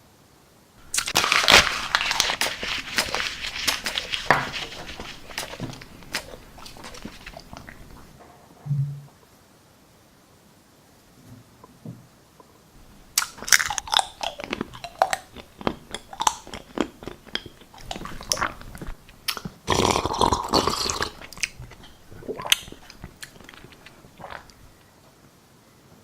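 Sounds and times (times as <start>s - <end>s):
chips being chewed: 0.8s - 8.2s, 12.8s - 24.8s.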